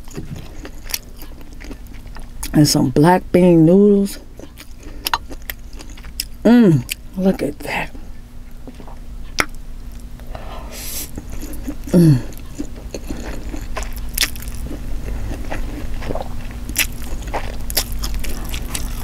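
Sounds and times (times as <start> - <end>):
chewing with wet clicks: 0.0 - 2.6, 4.4 - 7.1, 8.6 - 10.2, 11.2 - 19.0
person humming: 6.5 - 6.9, 11.9 - 12.4.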